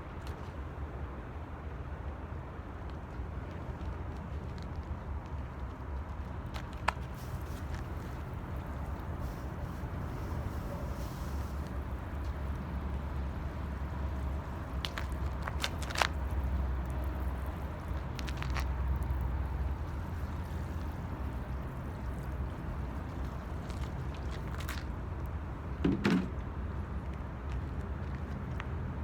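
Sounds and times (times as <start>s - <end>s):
fire crackling and popping: 6.7s - 25.0s
wood fire burning: 6.8s - 25.3s.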